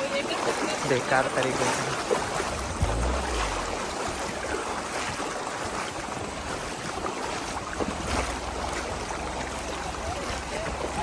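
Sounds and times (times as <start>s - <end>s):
river water rushing over stones: 0.0s - 11.0s
low rumble: 2.5s - 4.6s.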